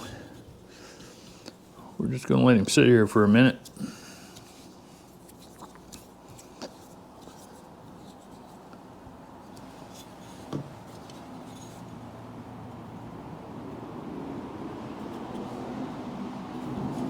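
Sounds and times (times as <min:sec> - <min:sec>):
handling clicks and rubs: 0:03.6 - 0:12.1, 0:15.0 - 0:17.0.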